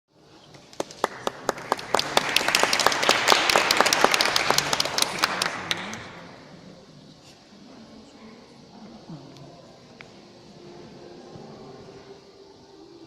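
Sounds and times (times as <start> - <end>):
audience applauding: 0.6 - 6.4.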